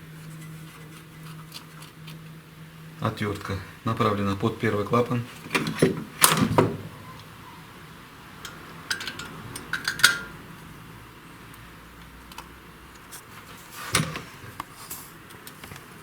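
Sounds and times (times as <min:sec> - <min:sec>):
metal tools clinking on steel parts: 0:08.4 - 0:10.4.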